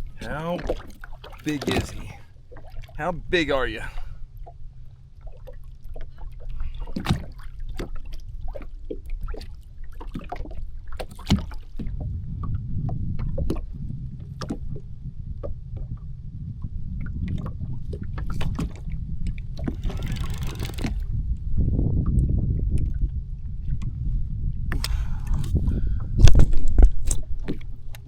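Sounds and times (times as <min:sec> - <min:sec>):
water splashes: 0:00.0 - 0:04.6, 0:05.2 - 0:12.0
jet ski idling: 0:01.4 - 0:02.2, 0:19.8 - 0:21.1.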